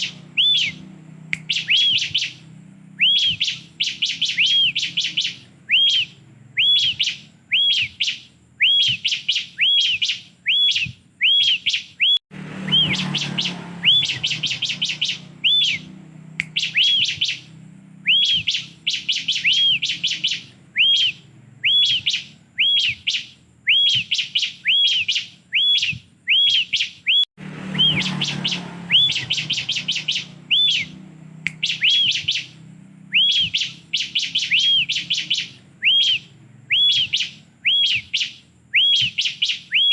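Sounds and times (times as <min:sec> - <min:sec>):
bird singing whistle and ticks: 0:00.0 - 0:39.9.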